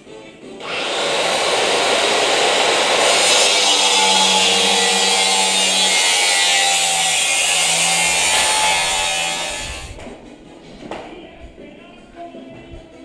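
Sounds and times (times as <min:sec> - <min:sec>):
power tool running: 0:00.6 - 0:10.0.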